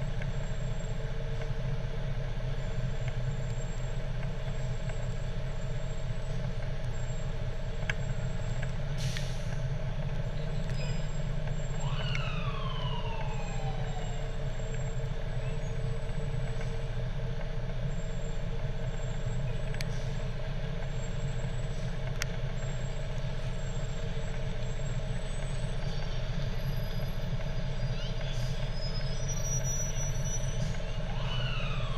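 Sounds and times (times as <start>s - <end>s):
fire truck engine running: 0.0s - 31.9s
short hiss: 9.0s - 9.6s
siren winding down: 11.6s - 14.9s, 28.0s - 31.9s.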